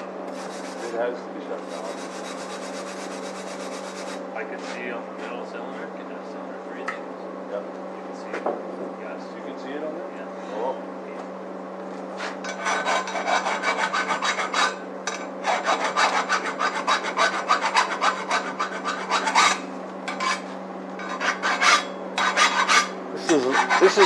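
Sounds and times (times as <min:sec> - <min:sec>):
steady low hum: 0:00.0 - 0:24.0
hand rasping strokes: 0:00.4 - 0:01.0, 0:01.6 - 0:04.8, 0:12.2 - 0:14.8, 0:15.4 - 0:24.0.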